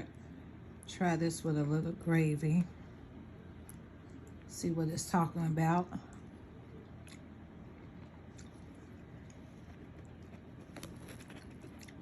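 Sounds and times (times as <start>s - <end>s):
person chewing food: 6.2s - 12.0s.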